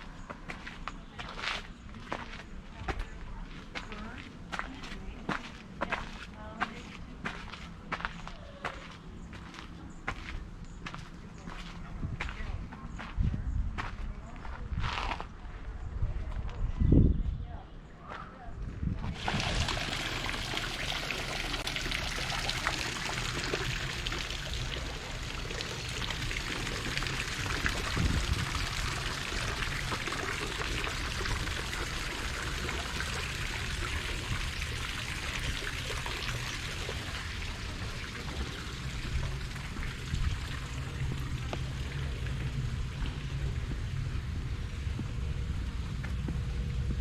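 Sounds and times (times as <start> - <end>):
fountain water splashing: 19.1 - 46.9
low rumble: 21.4 - 47.0.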